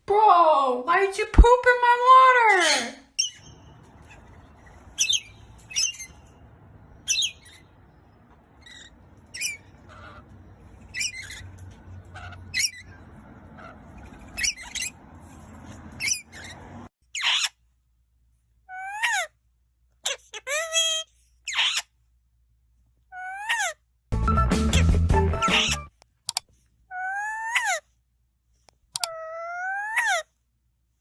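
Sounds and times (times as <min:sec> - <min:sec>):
parrot squawking: 0:02.4 - 0:15.1, 0:15.9 - 0:17.6, 0:18.7 - 0:19.4, 0:20.0 - 0:21.9, 0:23.1 - 0:23.8, 0:24.7 - 0:25.9, 0:26.9 - 0:27.8, 0:29.0 - 0:30.3.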